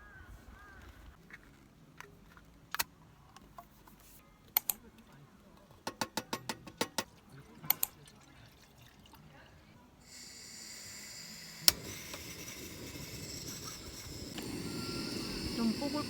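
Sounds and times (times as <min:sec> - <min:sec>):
cooking gear clicking: 0:10.4 - 0:16.0.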